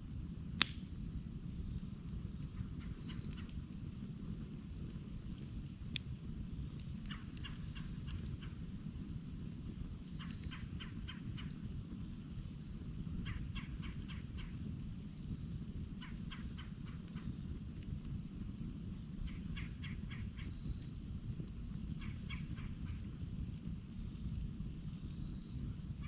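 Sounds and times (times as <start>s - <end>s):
campfire crackling: 0.0s - 26.0s
sharp pop of fire: 0.6s - 1.0s.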